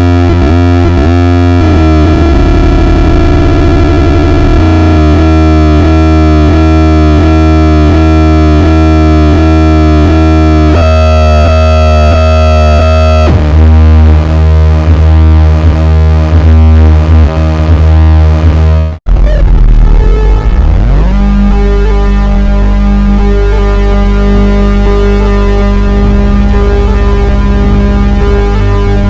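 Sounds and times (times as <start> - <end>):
pulsing synthesizer tones: 0.0 - 14.1, 17.6 - 29.0
synthesizer low drone: 0.0 - 29.0.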